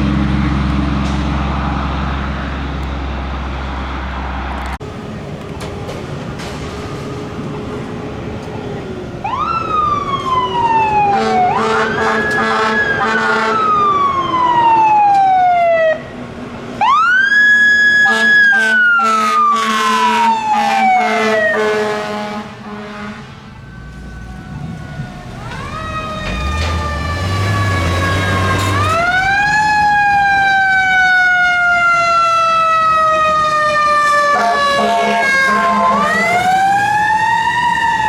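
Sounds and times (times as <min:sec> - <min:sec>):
fire truck siren: 0:01.4 - 0:38.0
steady air horn tones: 0:11.1 - 0:13.8, 0:18.0 - 0:23.5, 0:34.3 - 0:36.4.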